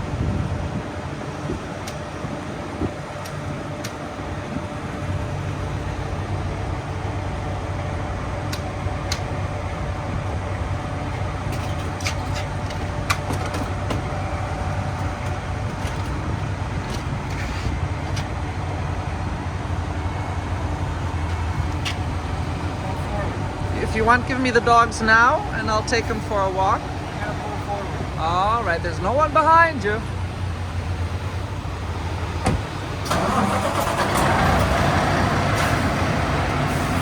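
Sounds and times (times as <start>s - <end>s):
diesel truck engine idling: 0.0s - 37.0s.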